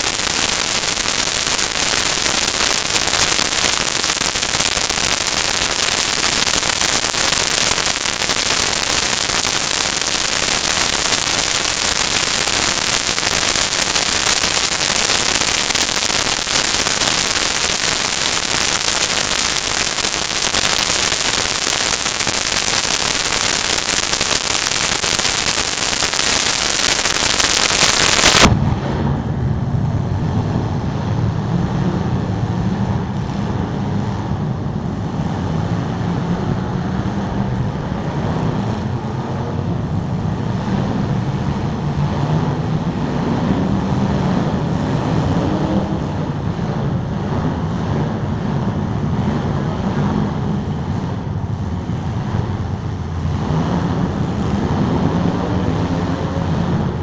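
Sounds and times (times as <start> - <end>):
loud crackling hiss: 0.0 - 28.6
car engines revving: 30.1 - 57.0.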